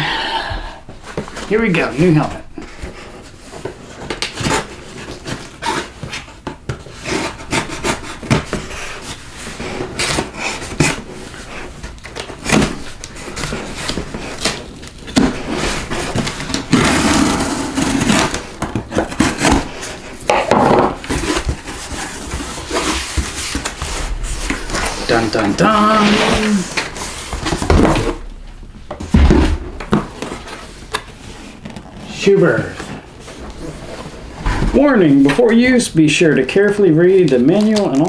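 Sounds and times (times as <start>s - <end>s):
cardboard packaging being opened: 21.0s - 38.0s.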